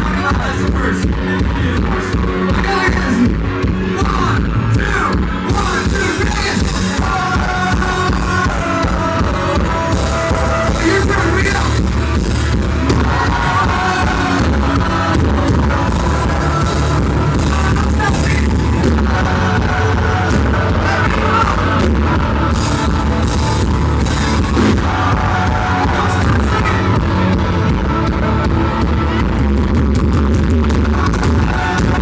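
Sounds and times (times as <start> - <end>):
live rock band playing: 0.0 - 32.0
person singing: 3.9 - 29.3.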